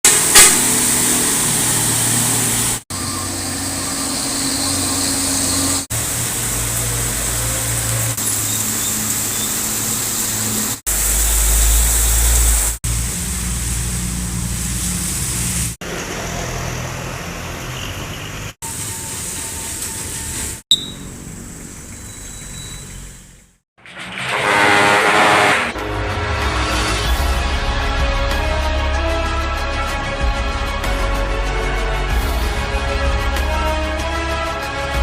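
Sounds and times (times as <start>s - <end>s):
truck engines labouring: 0.0s - 26.2s.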